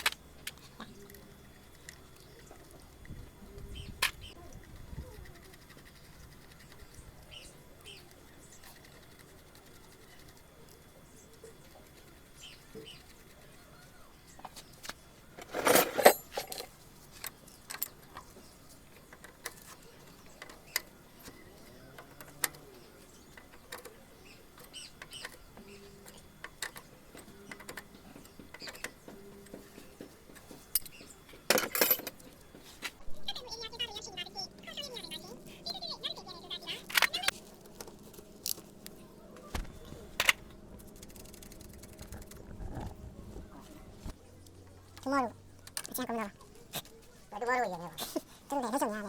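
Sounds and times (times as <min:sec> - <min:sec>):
tools clicking and tapping: 0:23.3 - 0:32.7.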